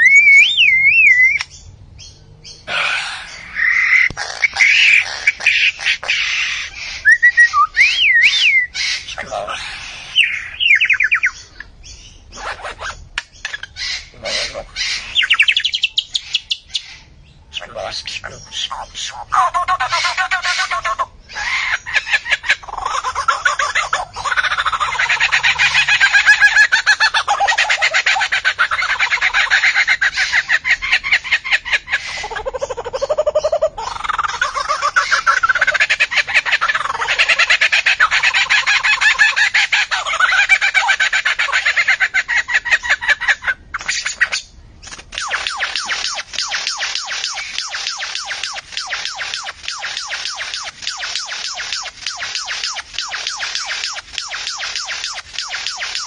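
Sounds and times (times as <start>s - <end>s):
bird gliding whistles: 0.0s - 1.5s, 6.4s - 9.1s, 9.8s - 11.4s
bird sharp clicks: 1.2s - 1.6s, 3.8s - 5.5s, 13.1s - 13.7s, 44.8s - 56.0s
bird rasping calls: 2.4s - 56.0s.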